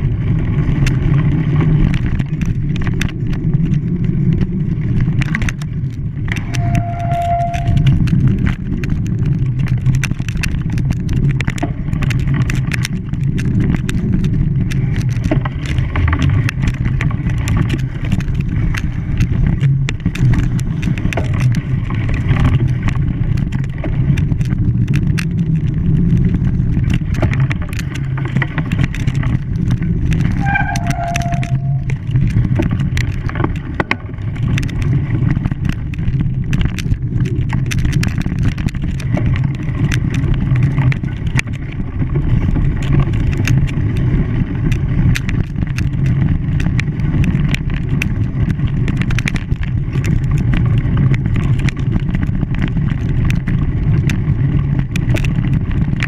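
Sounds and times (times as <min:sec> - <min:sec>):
small clicks and knocks: 0:00.6 - 0:56.0
short squeal: 0:06.4 - 0:08.0, 0:30.4 - 0:31.9.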